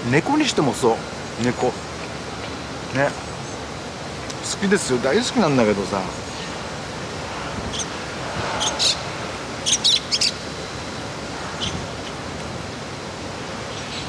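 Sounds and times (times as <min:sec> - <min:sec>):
wind noise on microphone: 0:06.5 - 0:13.7
small birds chirping: 0:07.5 - 0:12.3, 0:13.5 - 0:14.0.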